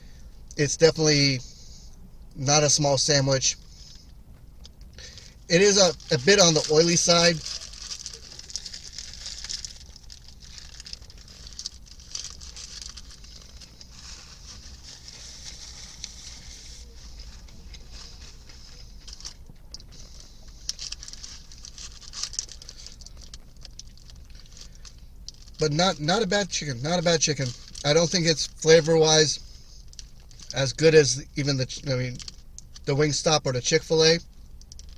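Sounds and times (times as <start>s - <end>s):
low hum and hiss: 0.0s - 34.9s
crunchy chewing: 3.6s - 25.6s
small crackles and clicks: 5.9s - 16.4s, 17.0s - 25.6s, 32.1s - 32.9s, 34.5s - 34.9s.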